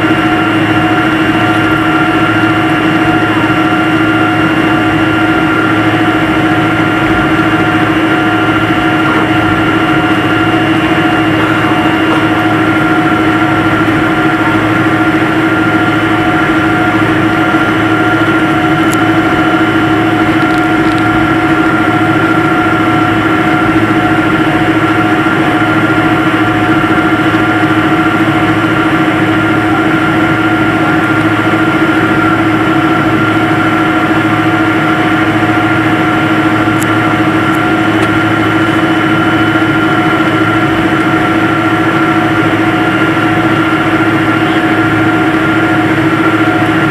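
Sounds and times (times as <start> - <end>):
jet engine noise in cabin: 0.0 - 46.9.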